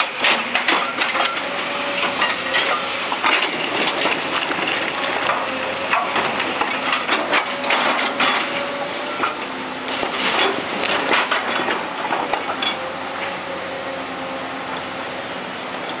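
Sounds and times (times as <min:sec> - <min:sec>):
rock breaker cracking and clattering: 0:00.0 - 0:12.8
excavator running: 0:00.0 - 0:16.0.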